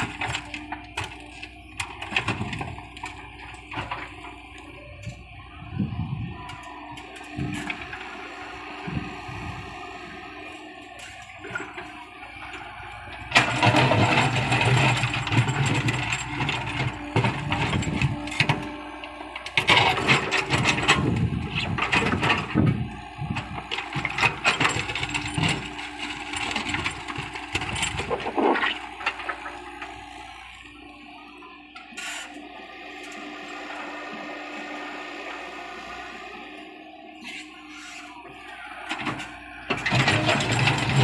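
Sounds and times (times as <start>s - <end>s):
excavator running: 0.0s - 41.0s
rough scraping and clattering: 13.3s - 18.6s, 39.0s - 41.0s.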